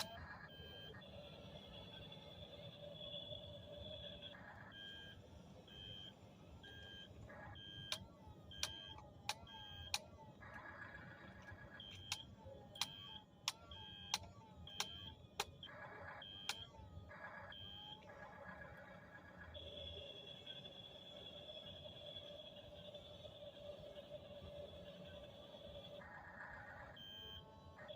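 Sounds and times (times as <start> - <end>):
sharp clicks: 7.8 - 10.7, 11.4 - 15.7, 16.4 - 16.8.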